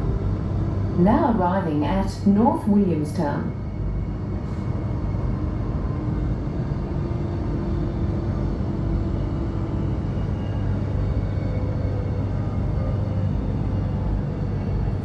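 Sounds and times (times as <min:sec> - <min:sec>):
faint train whine: 0:00.0 - 0:15.0
train rumbling inside carriage: 0:00.0 - 0:15.0.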